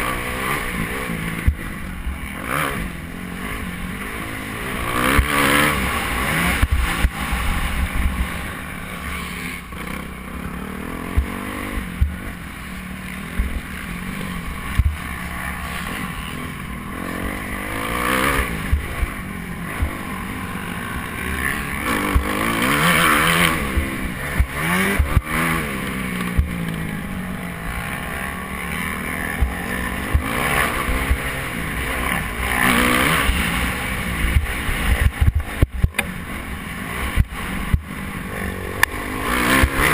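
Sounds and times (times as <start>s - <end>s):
motocross bike engine revving: 0.0s - 39.9s
low rumble with knocks: 26.2s - 26.8s.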